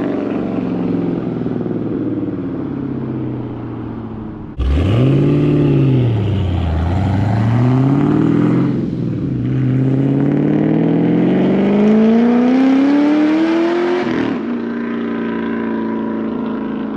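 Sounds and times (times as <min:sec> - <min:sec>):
car engine revving at full throttle: 0:03.4 - 0:16.9.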